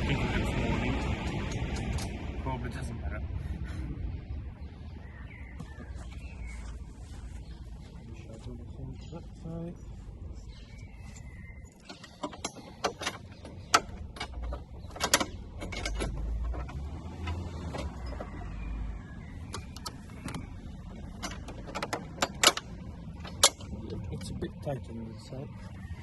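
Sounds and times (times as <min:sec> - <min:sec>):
metallic clicks of tools and bolts: 0:11.8 - 0:18.4, 0:21.0 - 0:23.8.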